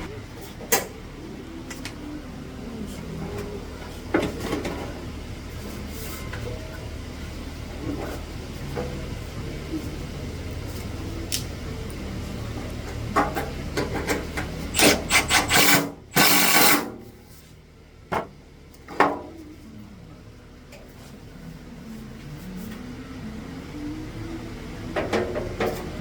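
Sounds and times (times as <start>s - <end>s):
low hum: 0.0s - 0.2s.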